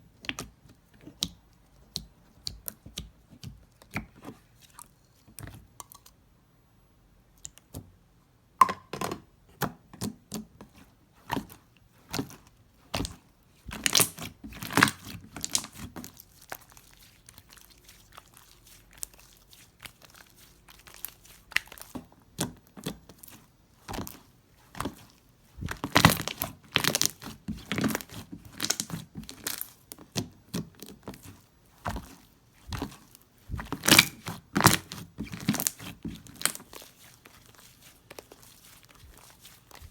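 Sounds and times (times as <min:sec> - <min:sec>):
slime crackling and popping: 0:12.1 - 0:39.9.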